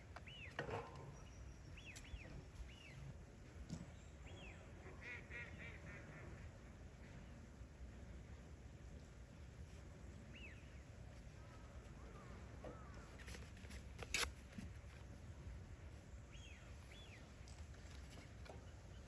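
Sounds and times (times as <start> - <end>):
faint bird chirps: 0.2 - 3.1.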